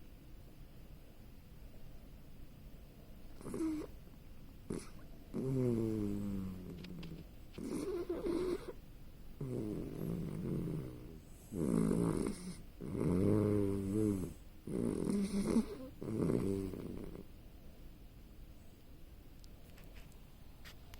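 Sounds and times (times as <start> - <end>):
puppy snoring: 3.3 - 4.0, 4.7 - 8.8, 9.4 - 17.3.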